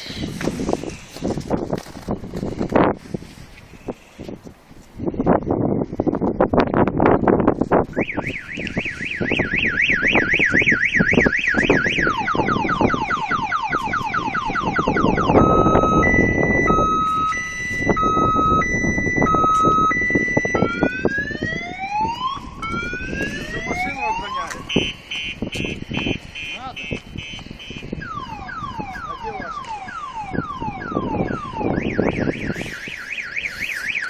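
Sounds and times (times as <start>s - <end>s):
car alarm siren: 7.9s - 34.0s.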